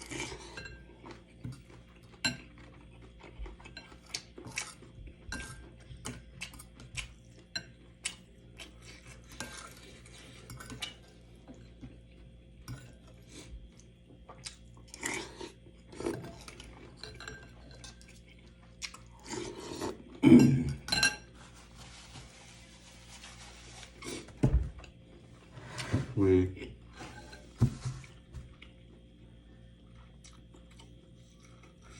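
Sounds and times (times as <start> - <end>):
cutlery clinking on a plate: 20.4 - 21.3.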